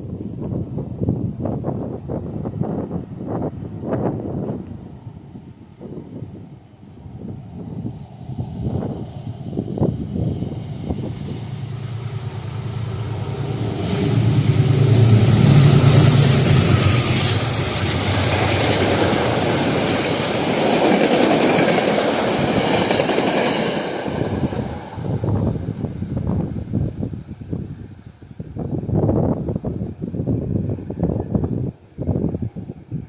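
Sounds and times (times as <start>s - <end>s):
locomotive engine hum: 2.0s - 26.6s
light clatter of train cars: 7.0s - 26.6s
train wheels on rails: 7.2s - 26.8s.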